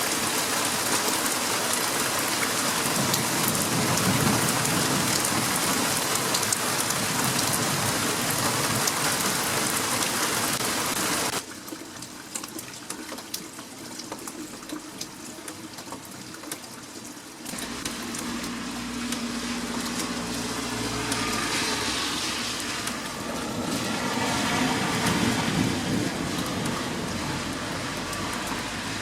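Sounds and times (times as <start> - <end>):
heavy rain pattering: 0.0 - 29.0
rushing sound with low rumble: 17.6 - 29.0.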